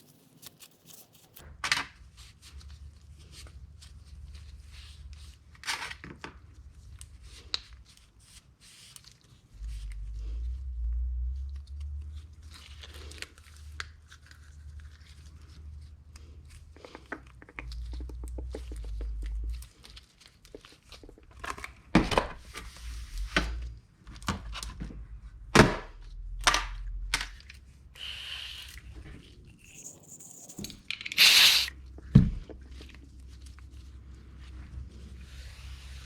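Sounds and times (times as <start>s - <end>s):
rustling and scraping: 0.0s - 1.5s, 29.0s - 31.7s
short hiss: 28.0s - 28.8s, 29.7s - 31.7s.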